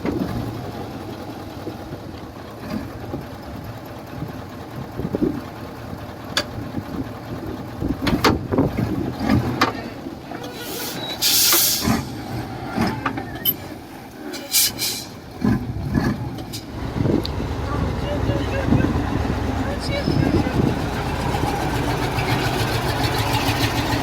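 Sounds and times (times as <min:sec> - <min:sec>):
diesel engine running: 0:00.0 - 0:24.0
metallic clanks and knocks: 0:08.0 - 0:09.8
burst of hiss: 0:10.5 - 0:12.2, 0:14.4 - 0:15.1.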